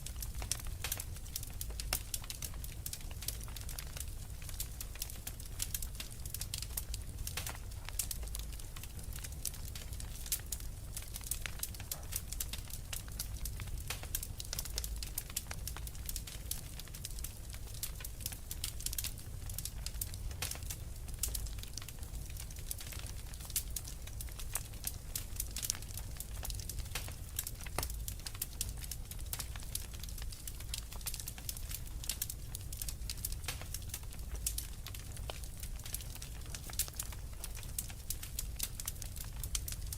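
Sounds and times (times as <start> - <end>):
fire crackling in fireplace: 0.0 - 39.9.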